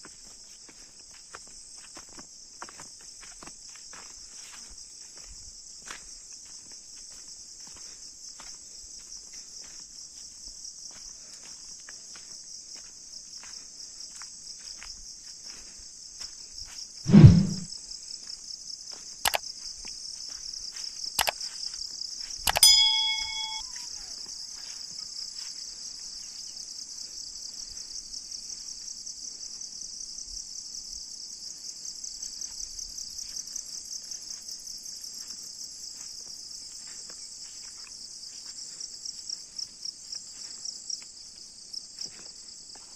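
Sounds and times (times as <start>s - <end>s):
loud low thump: 17.1s - 17.7s
sharp clicks: 22.5s - 23.6s
brief ringing tone: 22.5s - 24.0s.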